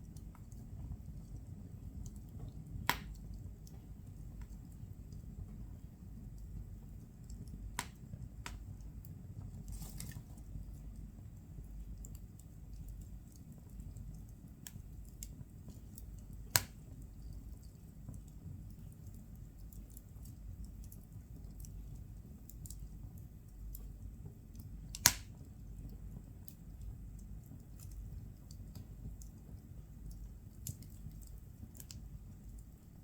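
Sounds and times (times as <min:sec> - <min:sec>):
firewood crackling: 0:00.0 - 0:33.0
low fire rumble: 0:00.0 - 0:33.0
sharp fire pops: 0:02.8 - 0:03.1, 0:07.8 - 0:08.7, 0:16.5 - 0:16.9, 0:24.9 - 0:25.4.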